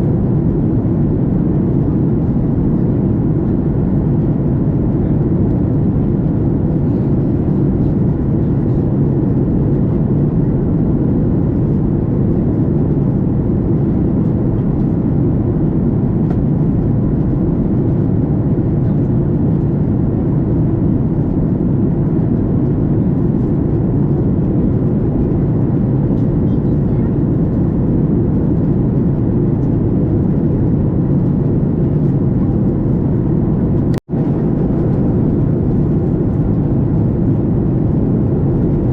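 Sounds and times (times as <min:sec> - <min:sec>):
airplane cabin noise in flight: 0:00.0 - 0:38.9.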